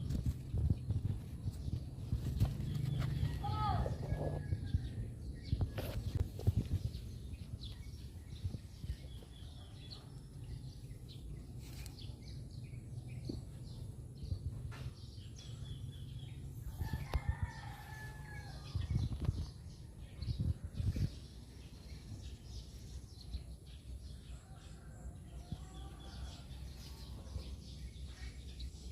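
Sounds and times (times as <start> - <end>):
steady low rumble: 0.0 - 22.8.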